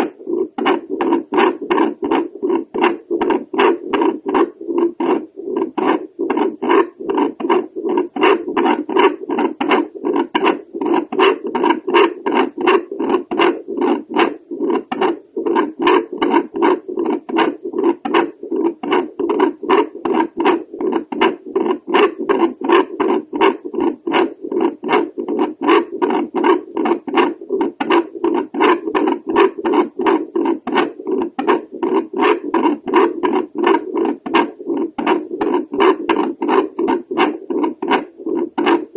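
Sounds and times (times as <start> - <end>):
steady hum: 1.8 - 8.0.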